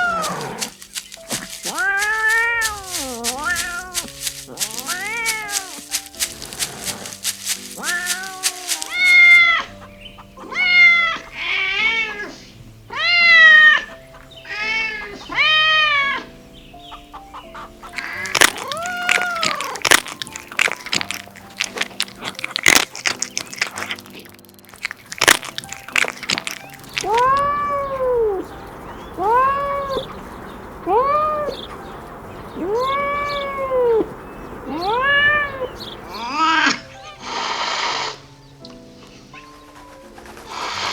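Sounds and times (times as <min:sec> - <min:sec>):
kittens meowing: 0:00.0 - 0:16.4, 0:17.0 - 0:38.0
background music: 0:00.0 - 0:40.9
sharp clicks: 0:18.0 - 0:27.6.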